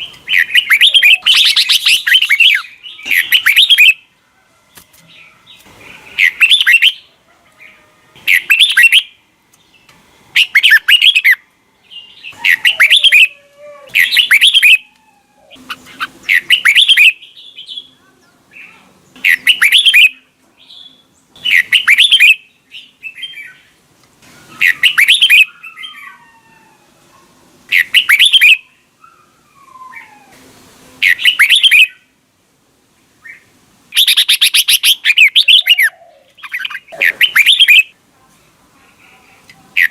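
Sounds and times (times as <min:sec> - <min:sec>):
faint chirps and gliding calls: 0:00.0 - 0:04.4, 0:05.2 - 0:30.4, 0:33.2 - 0:38.0.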